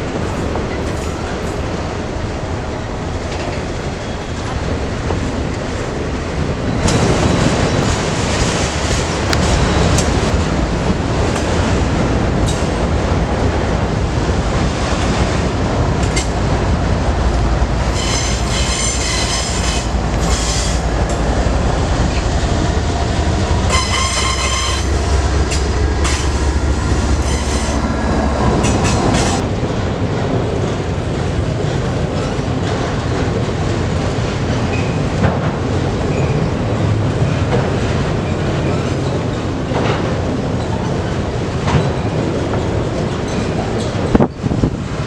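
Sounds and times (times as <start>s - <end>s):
train wheels rumbling and clattering: 0.0s - 45.0s
high-pitched wheel squeal: 17.9s - 20.8s, 23.7s - 25.0s, 27.2s - 27.9s.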